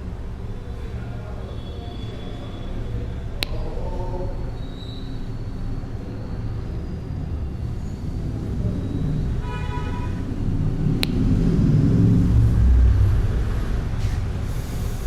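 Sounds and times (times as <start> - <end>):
sharp click: 3.4 - 3.7, 11.0 - 11.4
steady low rumble: 10.1 - 15.0.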